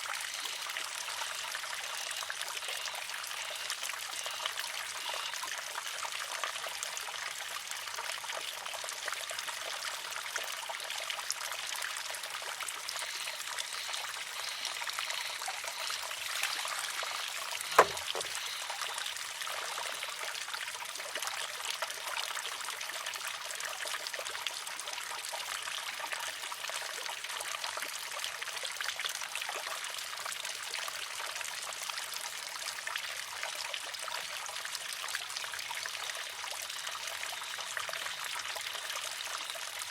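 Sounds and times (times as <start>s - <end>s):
water trickling: 0.0s - 28.0s
bamboo arm clacking on rock: 17.6s - 18.6s.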